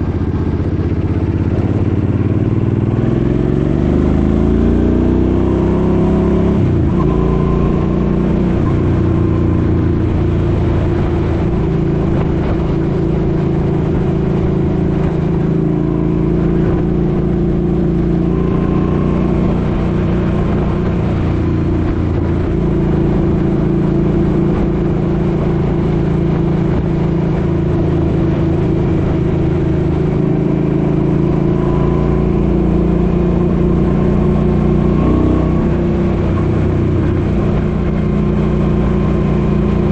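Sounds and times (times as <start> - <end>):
motorcycle engine at road speed: 0.0 - 39.9
wind rushing over microphone: 0.0 - 39.9.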